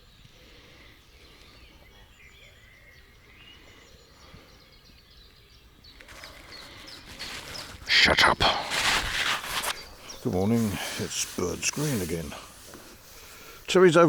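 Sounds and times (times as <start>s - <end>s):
birds chirping and warbling: 0.0s - 14.0s
low outdoor background noise: 0.0s - 14.0s
loud rustling: 6.0s - 13.7s.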